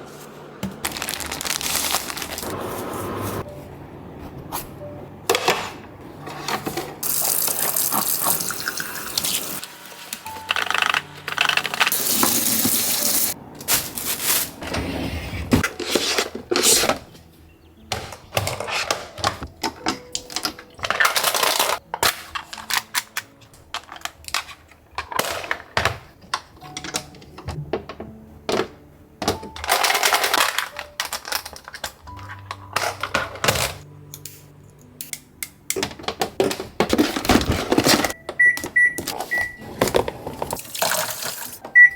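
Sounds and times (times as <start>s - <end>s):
soft background music: 0.0s - 41.9s
rustling: 0.1s - 3.4s
objects clicking and knocking: 17.9s - 41.8s
appliance beeps: 38.0s - 39.8s.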